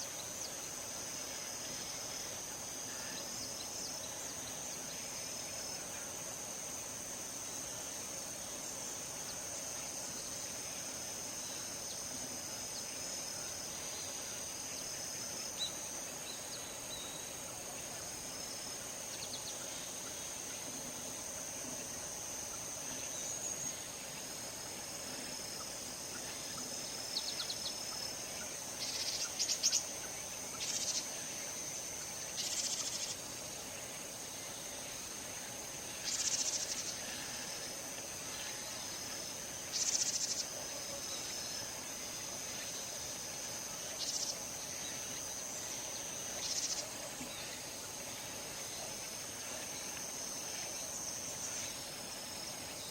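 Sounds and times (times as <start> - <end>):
insects trilling: 0.0 - 52.9
raspy insect chirps: 25.6 - 33.9, 36.0 - 37.6, 39.6 - 40.6, 43.8 - 47.9.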